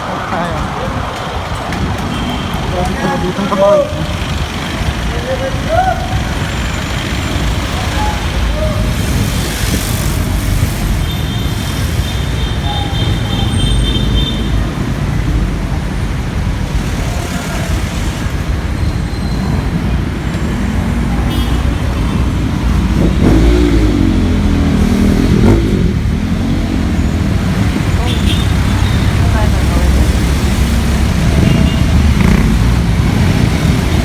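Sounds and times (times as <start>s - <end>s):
city street traffic rumble: 0.0s - 34.0s
passing vehicle engine: 19.5s - 34.0s.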